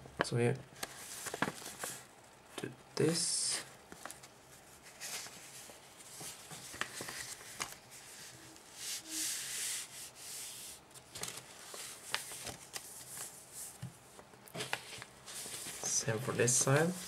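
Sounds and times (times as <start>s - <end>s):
paper rubbing swishes: 4.8s - 10.8s.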